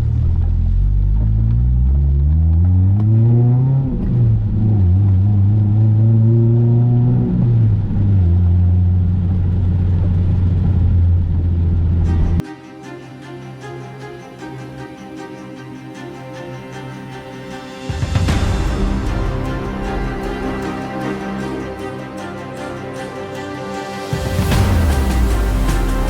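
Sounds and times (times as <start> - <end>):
car engine accelerating through gears: 0.1 - 12.4
music: 12.0 - 26.0.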